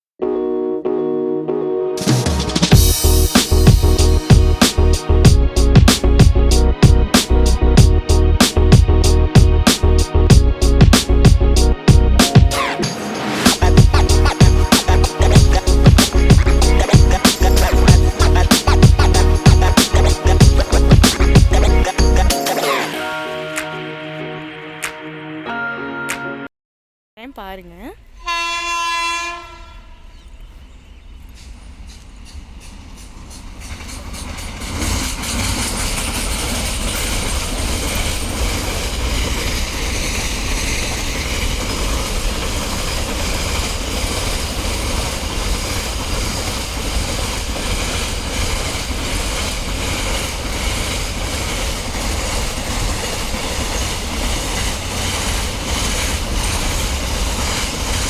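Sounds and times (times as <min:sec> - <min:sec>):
train rumbling past: 0:02.0 - 0:23.5, 0:28.0 - 0:58.0
train horn: 0:28.1 - 0:30.2
wheels clacking over rail joints: 0:31.3 - 0:58.0.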